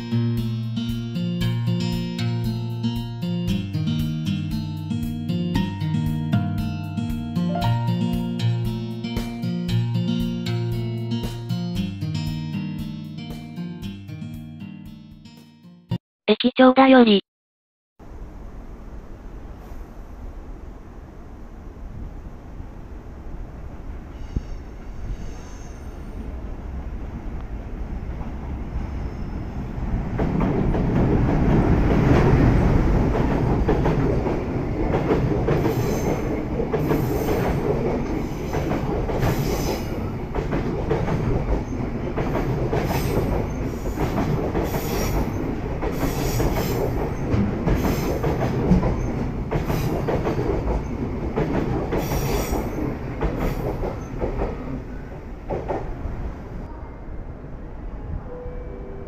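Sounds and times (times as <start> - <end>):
freight train rumbling past: 0.0 - 14.7, 18.0 - 59.0
wheel squeaks and clacks: 41.0 - 54.6.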